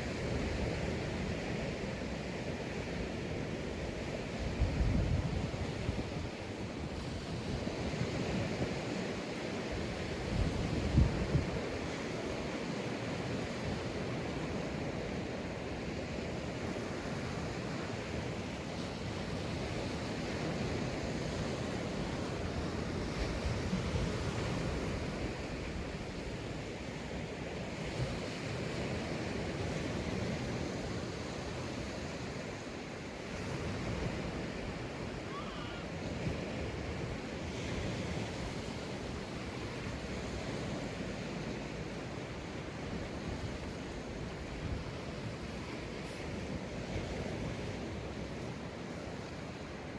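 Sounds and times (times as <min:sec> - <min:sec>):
waves breaking on beach: 0:00.0 - 0:49.9
wind on microphone: 0:03.8 - 0:49.9.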